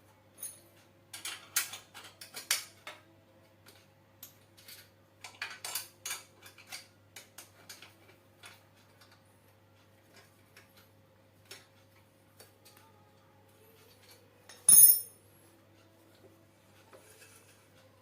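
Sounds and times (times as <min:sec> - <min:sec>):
small metal parts clinking: 0:14.0 - 0:15.2.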